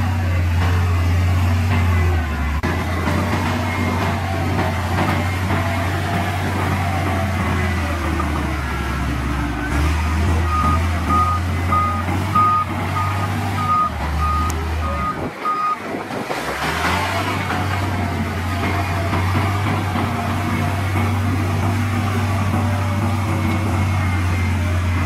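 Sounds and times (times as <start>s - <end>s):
heavy diesel engine droning: 0.0s - 25.0s
reversing alarm beeping: 6.6s - 15.9s.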